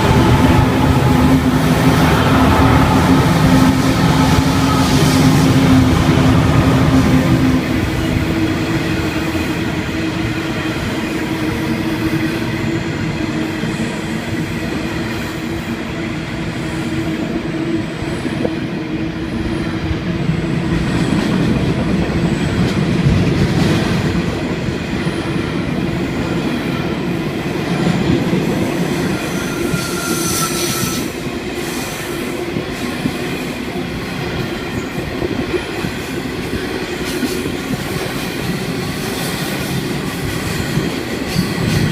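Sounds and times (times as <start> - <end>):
diesel locomotive engine drone: 0.0 - 41.9
train wheels rumbling and clattering: 0.0 - 41.9
high wheel squeals: 29.0 - 31.2.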